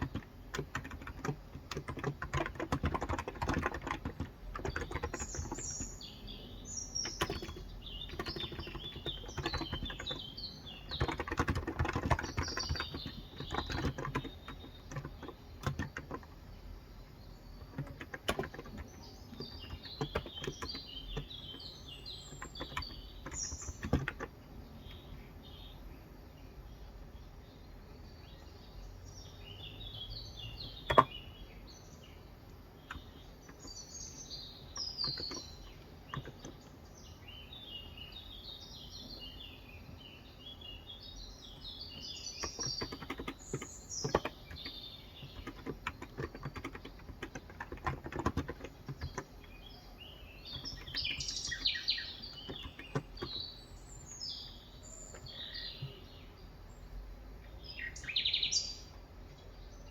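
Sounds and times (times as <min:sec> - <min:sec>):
keyboard keystrokes: 0:00.0 - 0:05.8, 0:07.0 - 0:16.4, 0:17.6 - 0:24.3, 0:30.7 - 0:31.1, 0:34.8 - 0:36.6, 0:42.4 - 0:49.3, 0:50.5 - 0:53.4
small birds chirping: 0:00.0 - 0:59.9.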